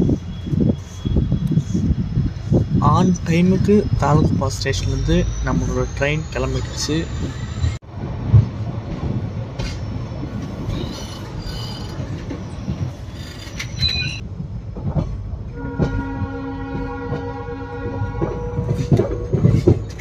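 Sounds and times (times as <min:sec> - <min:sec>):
train coach rumbling: 0:00.0 - 0:20.0
wheels clicking over rails: 0:03.0 - 0:16.0, 0:16.6 - 0:20.0
train horn: 0:15.5 - 0:19.8.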